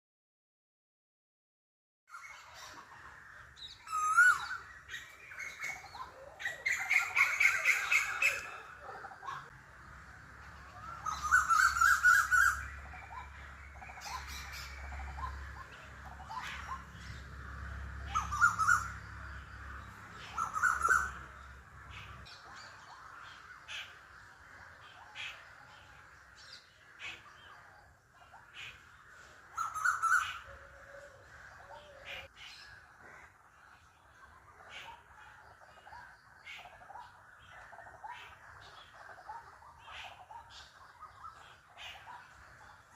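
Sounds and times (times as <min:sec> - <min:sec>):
birds harsh repeated calls: 0:02.1 - 0:42.9
bird chirps: 0:03.6 - 0:42.9.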